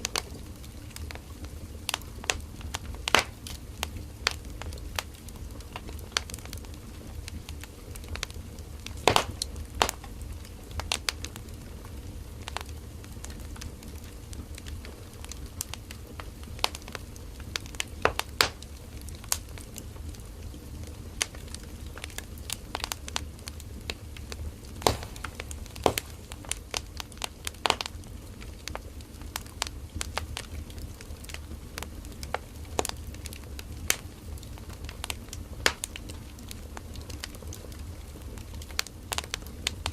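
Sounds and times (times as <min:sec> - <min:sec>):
campfire crackling and popping: 0:00.0 - 0:39.9
low rumble of flames: 0:00.0 - 0:39.9
loud wood snaps: 0:09.0 - 0:10.2, 0:24.8 - 0:27.9.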